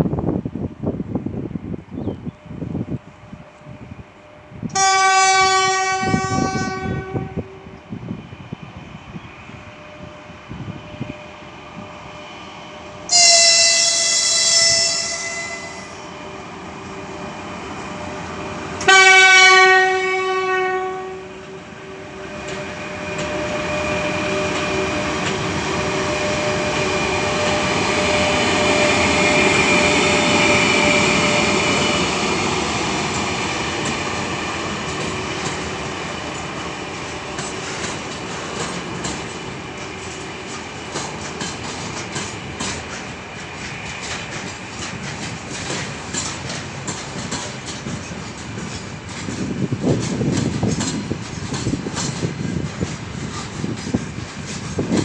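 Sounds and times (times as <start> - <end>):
freight train running past: 0.0 - 55.0
locomotive horn blast: 4.7 - 7.7, 13.1 - 16.1, 18.8 - 31.2
wheels clicking over rail joints: 22.3 - 28.3, 32.9 - 55.0.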